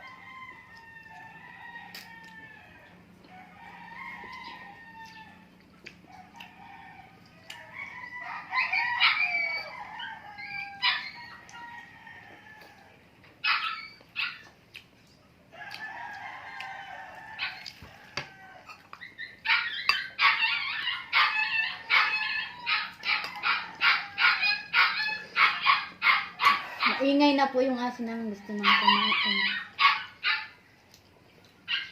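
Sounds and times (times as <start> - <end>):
rooster crowing: 0.0 - 13.8, 15.6 - 18.8, 19.5 - 27.7, 28.4 - 30.5
dog barking: 13.4 - 14.4, 19.5 - 27.1, 28.6 - 30.5, 31.7 - 31.9
dog drawn-out calls: 19.2 - 27.0.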